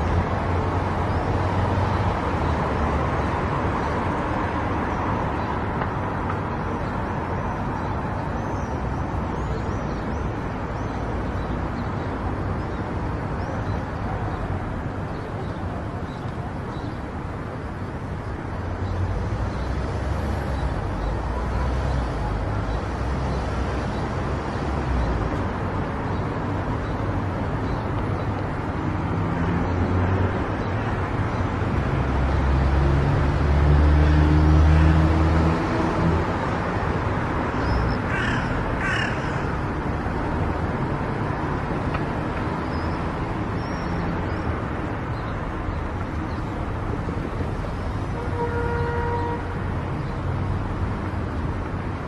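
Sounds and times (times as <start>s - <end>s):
crow cawing: 38.1s - 39.6s.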